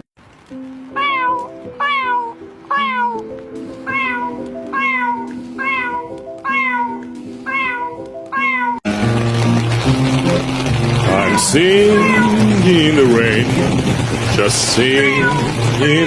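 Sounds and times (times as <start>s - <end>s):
background music with held notes: 0.3s - 16.0s
cat meowing: 0.9s - 8.8s, 11.2s - 12.4s, 15.0s - 15.6s.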